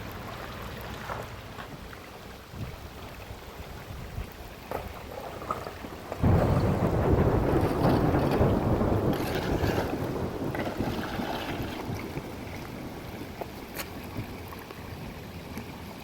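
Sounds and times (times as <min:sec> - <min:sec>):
heavy rain falling: 0:05.3 - 0:13.8
thunder rumbling: 0:05.9 - 0:13.3.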